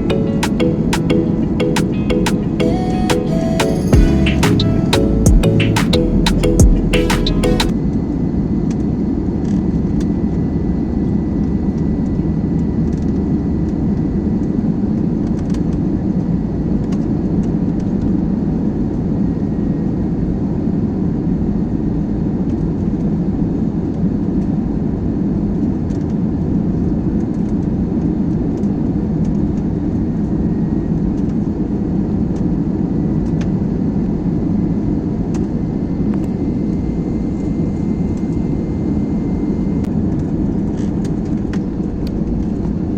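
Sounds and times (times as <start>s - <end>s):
faint high whine: 34.7s - 42.9s.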